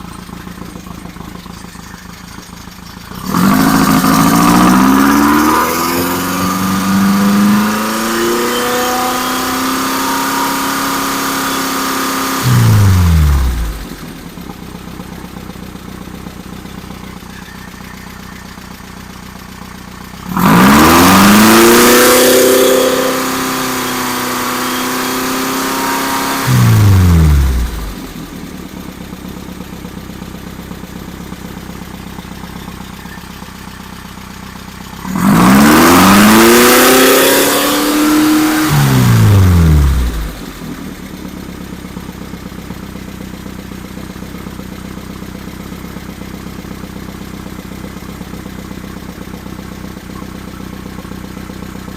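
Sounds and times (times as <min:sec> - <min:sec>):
engine revving: 0:00.0 - 0:15.1, 0:16.5 - 0:28.6, 0:30.2 - 0:41.2.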